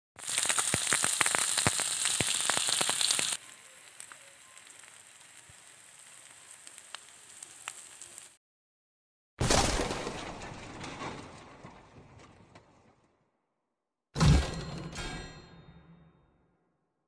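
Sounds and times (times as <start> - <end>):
meat sizzling in oil: 0.2 - 8.4.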